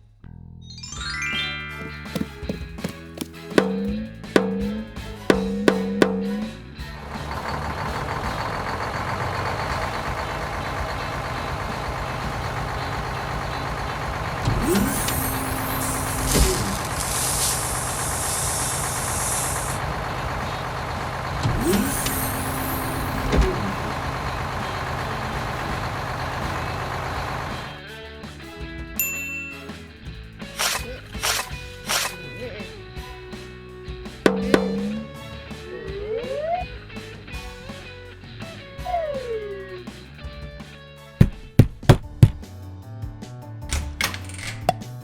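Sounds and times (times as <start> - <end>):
diesel engine running: 2.1 - 27.8, 34.3 - 35.9
air brake hiss: 14.6 - 19.8, 21.6 - 23.3.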